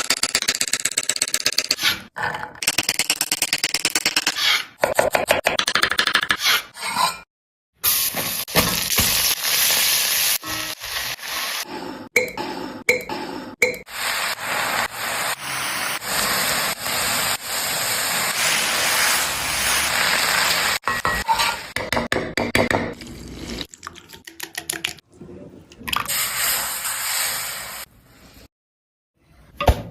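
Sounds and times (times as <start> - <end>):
potatoes sizzling in hot oil: 7.9 - 11.6, 13.9 - 20.8.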